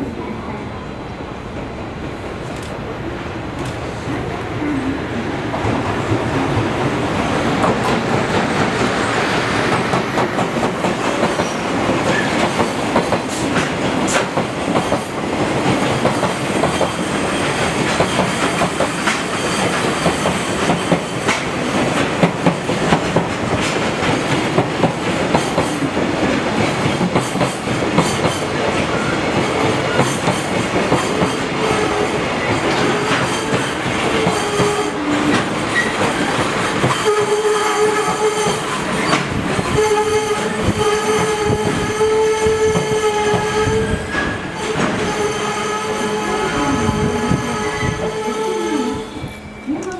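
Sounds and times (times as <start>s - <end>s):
freight train wheels clacking: 5.4s - 49.9s.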